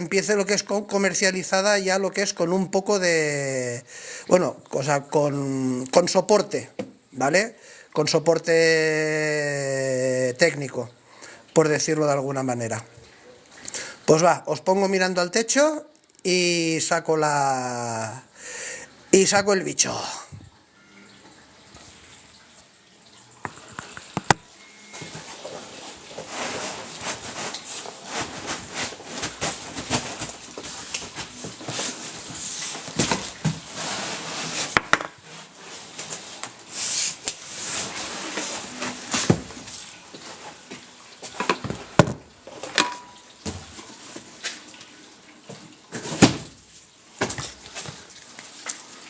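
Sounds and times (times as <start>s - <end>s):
cardboard and foam rustling: 24.2s - 42.7s, 45.9s - 49.0s.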